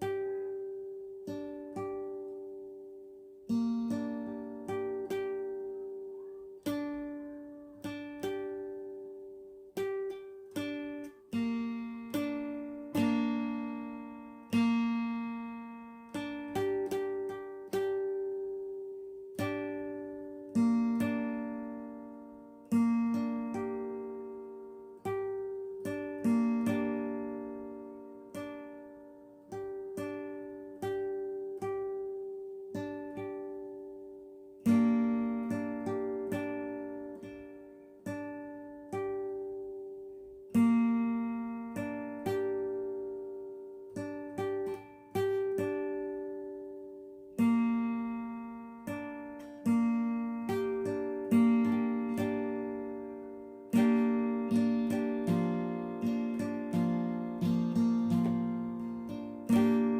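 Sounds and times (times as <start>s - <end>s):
acoustic guitar strumming: 0.0s - 59.9s
slow guitar strums: 47.3s - 59.9s.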